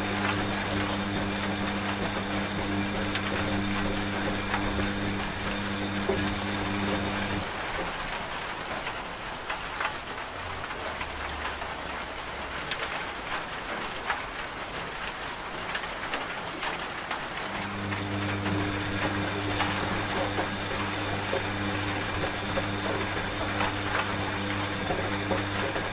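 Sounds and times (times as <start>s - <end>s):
washing machine motor hum: 0.0s - 7.8s, 17.4s - 25.9s
rain falling: 0.0s - 25.9s.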